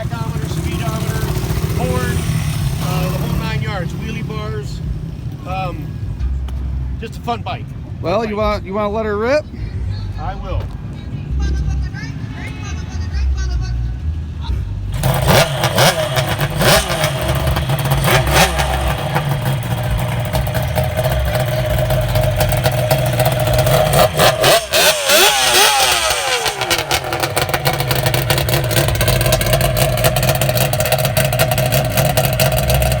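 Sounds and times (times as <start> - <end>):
motorbike engine revving: 0.0 - 5.3, 14.9 - 33.0.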